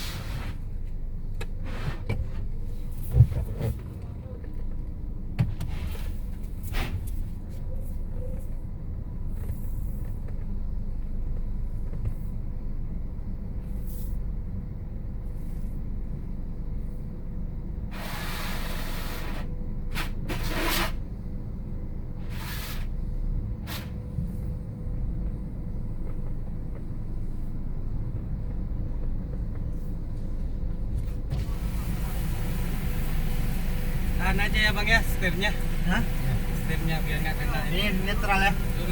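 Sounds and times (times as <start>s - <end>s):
car wash rumble: 0.0s - 7.6s, 17.9s - 21.2s, 22.2s - 38.9s
hissing spray bursts: 17.9s - 19.4s, 31.3s - 36.8s.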